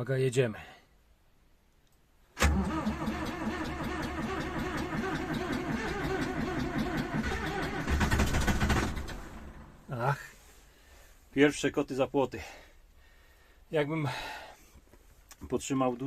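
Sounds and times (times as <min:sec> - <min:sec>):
starter motor cranking diesel engine: 0:02.4 - 0:09.8.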